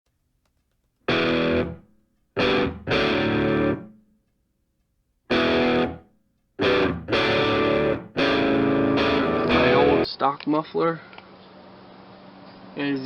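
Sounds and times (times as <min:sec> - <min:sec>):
distorted electric guitar chords: 0:01.1 - 0:01.8, 0:02.4 - 0:04.0, 0:05.3 - 0:06.0, 0:06.6 - 0:10.1.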